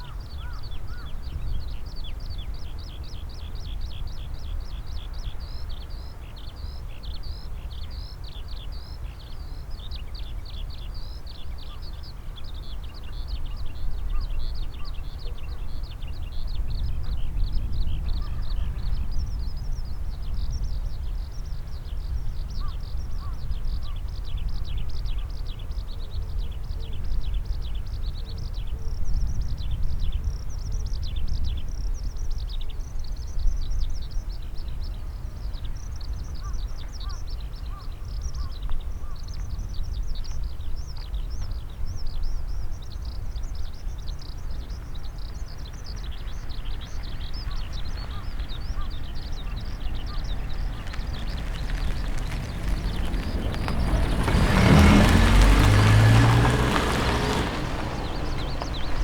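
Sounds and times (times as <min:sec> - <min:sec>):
small birds chirping: 0:00.0 - 0:59.0
low wind rumble: 0:42.0 - 0:59.0.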